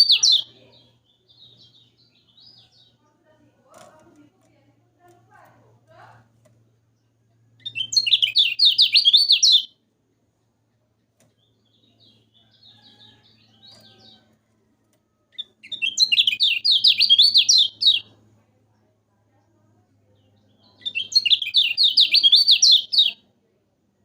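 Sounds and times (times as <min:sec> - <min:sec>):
bird rapid high chatter: 0:00.0 - 0:04.3, 0:07.6 - 0:09.7, 0:15.4 - 0:18.2, 0:20.1 - 0:23.2
soft bird calls: 0:15.3 - 0:23.2.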